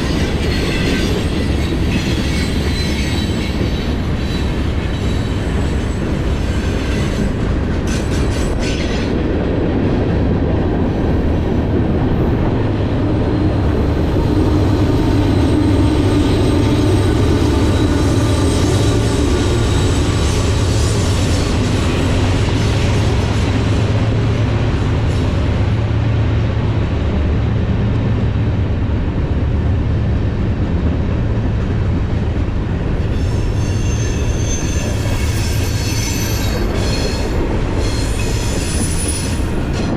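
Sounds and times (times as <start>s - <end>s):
train wheels rumbling on rail: 0.0s - 39.9s
wheel squeal: 0.2s - 7.3s, 33.1s - 39.5s.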